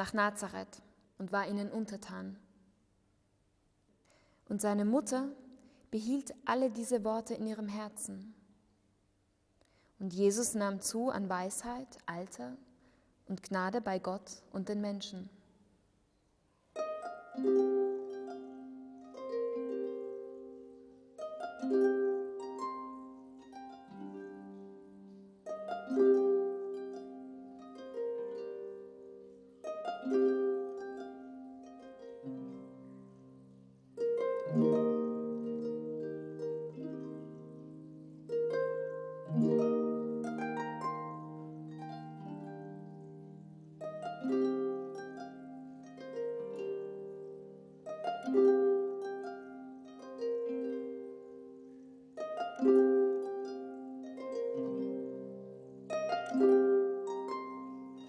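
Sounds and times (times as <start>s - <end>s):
plucked string instrument music: 16.7s - 58.0s.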